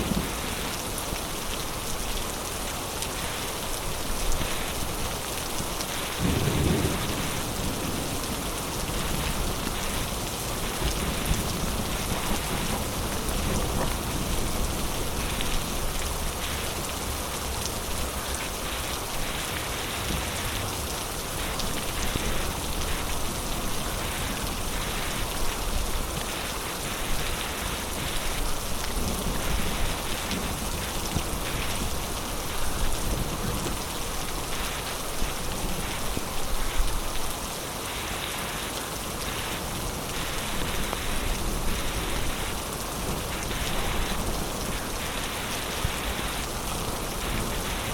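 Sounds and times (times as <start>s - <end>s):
thunder rumbling: 0.0s - 1.0s, 6.0s - 16.7s
heavy rain falling: 0.0s - 47.9s.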